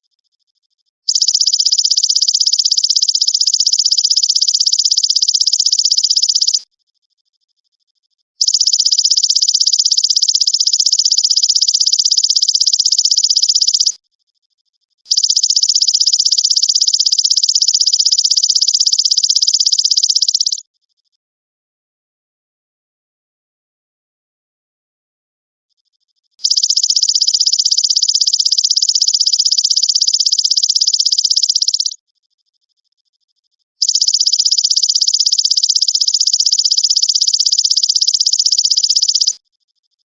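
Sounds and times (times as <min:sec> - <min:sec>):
grasshopper pulsing trills: 0:01.1 - 0:06.6, 0:08.4 - 0:14.0, 0:15.1 - 0:20.6, 0:26.4 - 0:32.0, 0:33.8 - 0:39.4.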